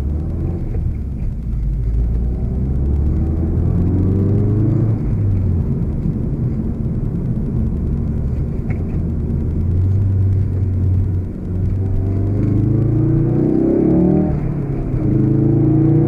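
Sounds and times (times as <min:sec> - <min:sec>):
car engine low drone: 0:00.0 - 0:16.0
road rumble: 0:00.0 - 0:16.0.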